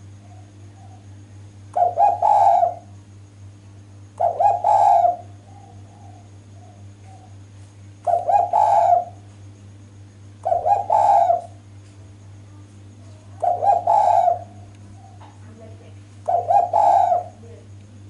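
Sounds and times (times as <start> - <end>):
dove cooing: 0.0 - 3.0, 4.2 - 7.4, 8.0 - 9.2, 10.4 - 11.7, 13.3 - 15.4, 16.2 - 17.7.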